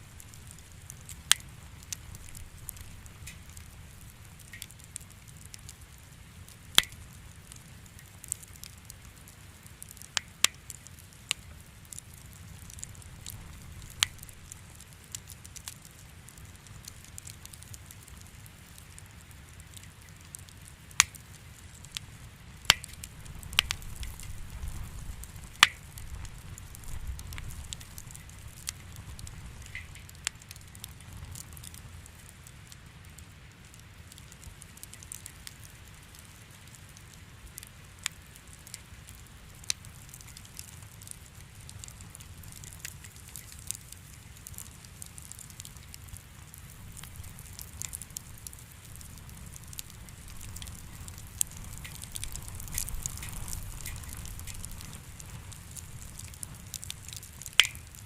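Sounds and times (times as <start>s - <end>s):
low steady rumble: 0.0s - 7.4s
wood fire crackling and popping: 0.0s - 58.0s.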